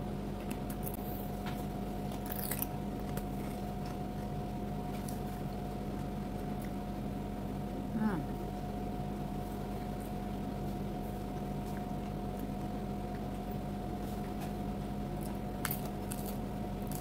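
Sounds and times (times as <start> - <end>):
background hum: 0.0 - 17.0
person chewing raw vegetables: 2.0 - 6.9, 15.1 - 17.0.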